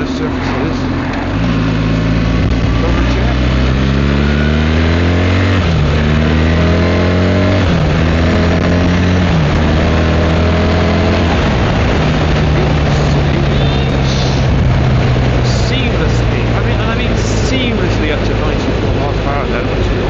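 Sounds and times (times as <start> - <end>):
motorcycle engine accelerating: 0.0 - 20.0
wind rush on microphone: 7.4 - 17.0.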